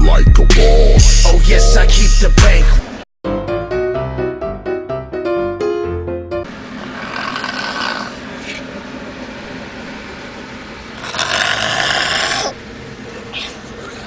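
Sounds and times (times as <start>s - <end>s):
person snoring loudly: 6.9s - 8.2s, 11.0s - 12.6s.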